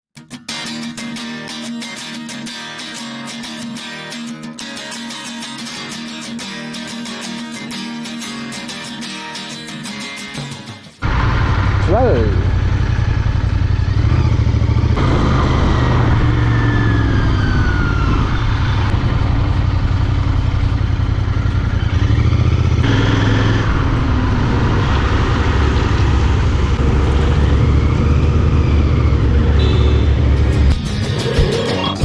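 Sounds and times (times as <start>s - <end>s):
motorcycle engine running: 11.0s - 31.8s.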